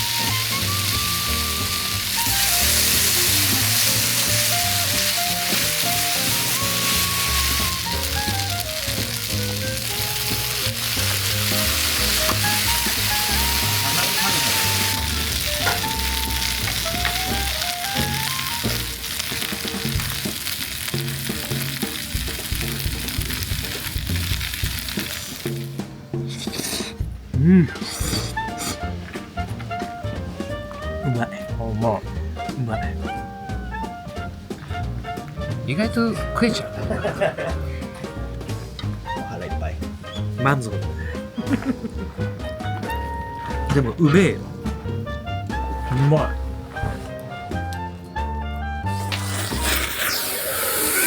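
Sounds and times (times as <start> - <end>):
stirring: 0.0 - 27.0
food sizzling on a hot pan: 0.0 - 31.2, 31.8 - 43.6, 48.8 - 51.0
background music with bass line: 0.0 - 50.3.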